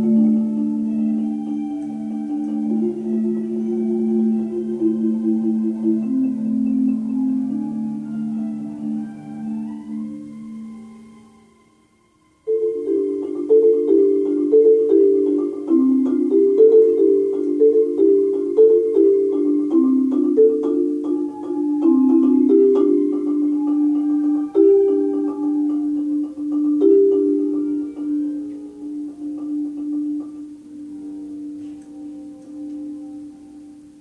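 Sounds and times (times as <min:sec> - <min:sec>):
marimba playing: 0:00.0 - 0:11.8, 0:12.4 - 0:34.0.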